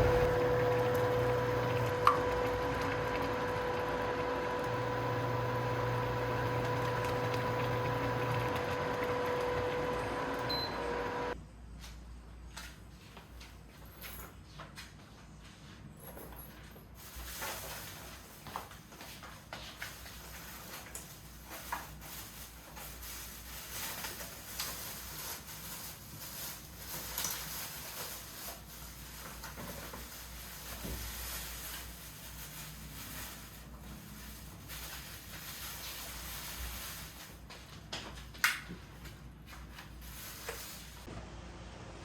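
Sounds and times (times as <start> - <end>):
rustling: 17.0 - 37.7.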